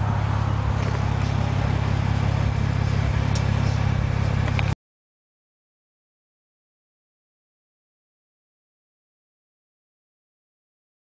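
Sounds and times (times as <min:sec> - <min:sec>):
car engine droning: 0:00.0 - 0:04.8.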